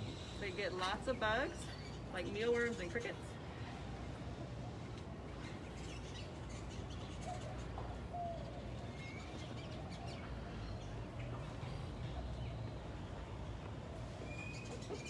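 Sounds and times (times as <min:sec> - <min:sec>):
birds chirping and whistling: 0:05.3 - 0:11.3, 0:14.2 - 0:15.0.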